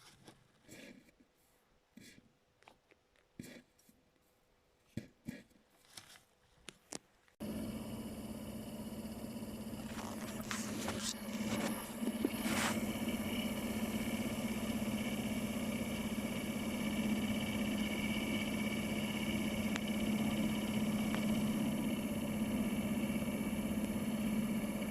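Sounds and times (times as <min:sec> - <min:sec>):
blower fan humming: 0:07.4 - 0:24.9.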